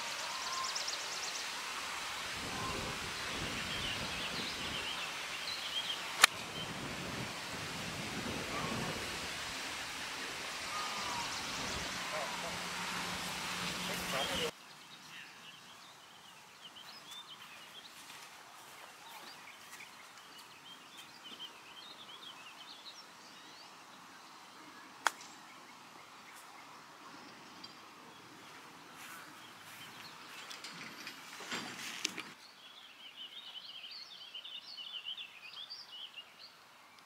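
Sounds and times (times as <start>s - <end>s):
outdoor background noise: 0.0s - 37.0s
small birds chirping: 10.1s - 31.4s.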